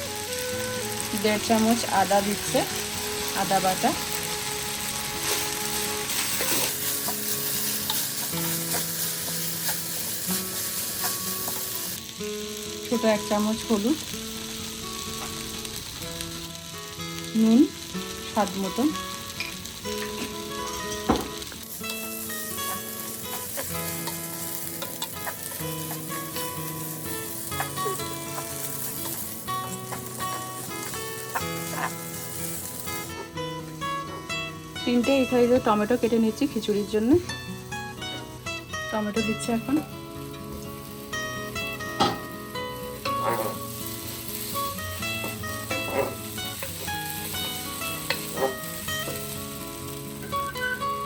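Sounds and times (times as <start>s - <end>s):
rice sizzling in hot oil: 0.0s - 51.0s
spoon scraping a pan: 6.1s - 11.7s, 27.3s - 33.3s, 43.0s - 43.8s, 45.2s - 46.9s, 48.0s - 49.2s.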